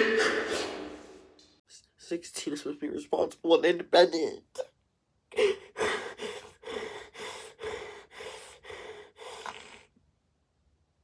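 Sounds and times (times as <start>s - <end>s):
person sobbing: 5.3s - 9.3s.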